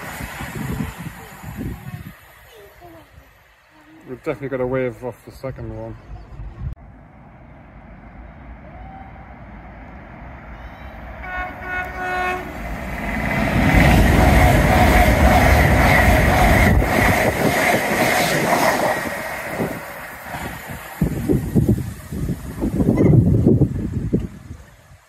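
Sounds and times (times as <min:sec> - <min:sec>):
train rushing past: 0:00.0 - 0:02.6, 0:06.0 - 0:24.7
train horn blast: 0:10.6 - 0:12.7.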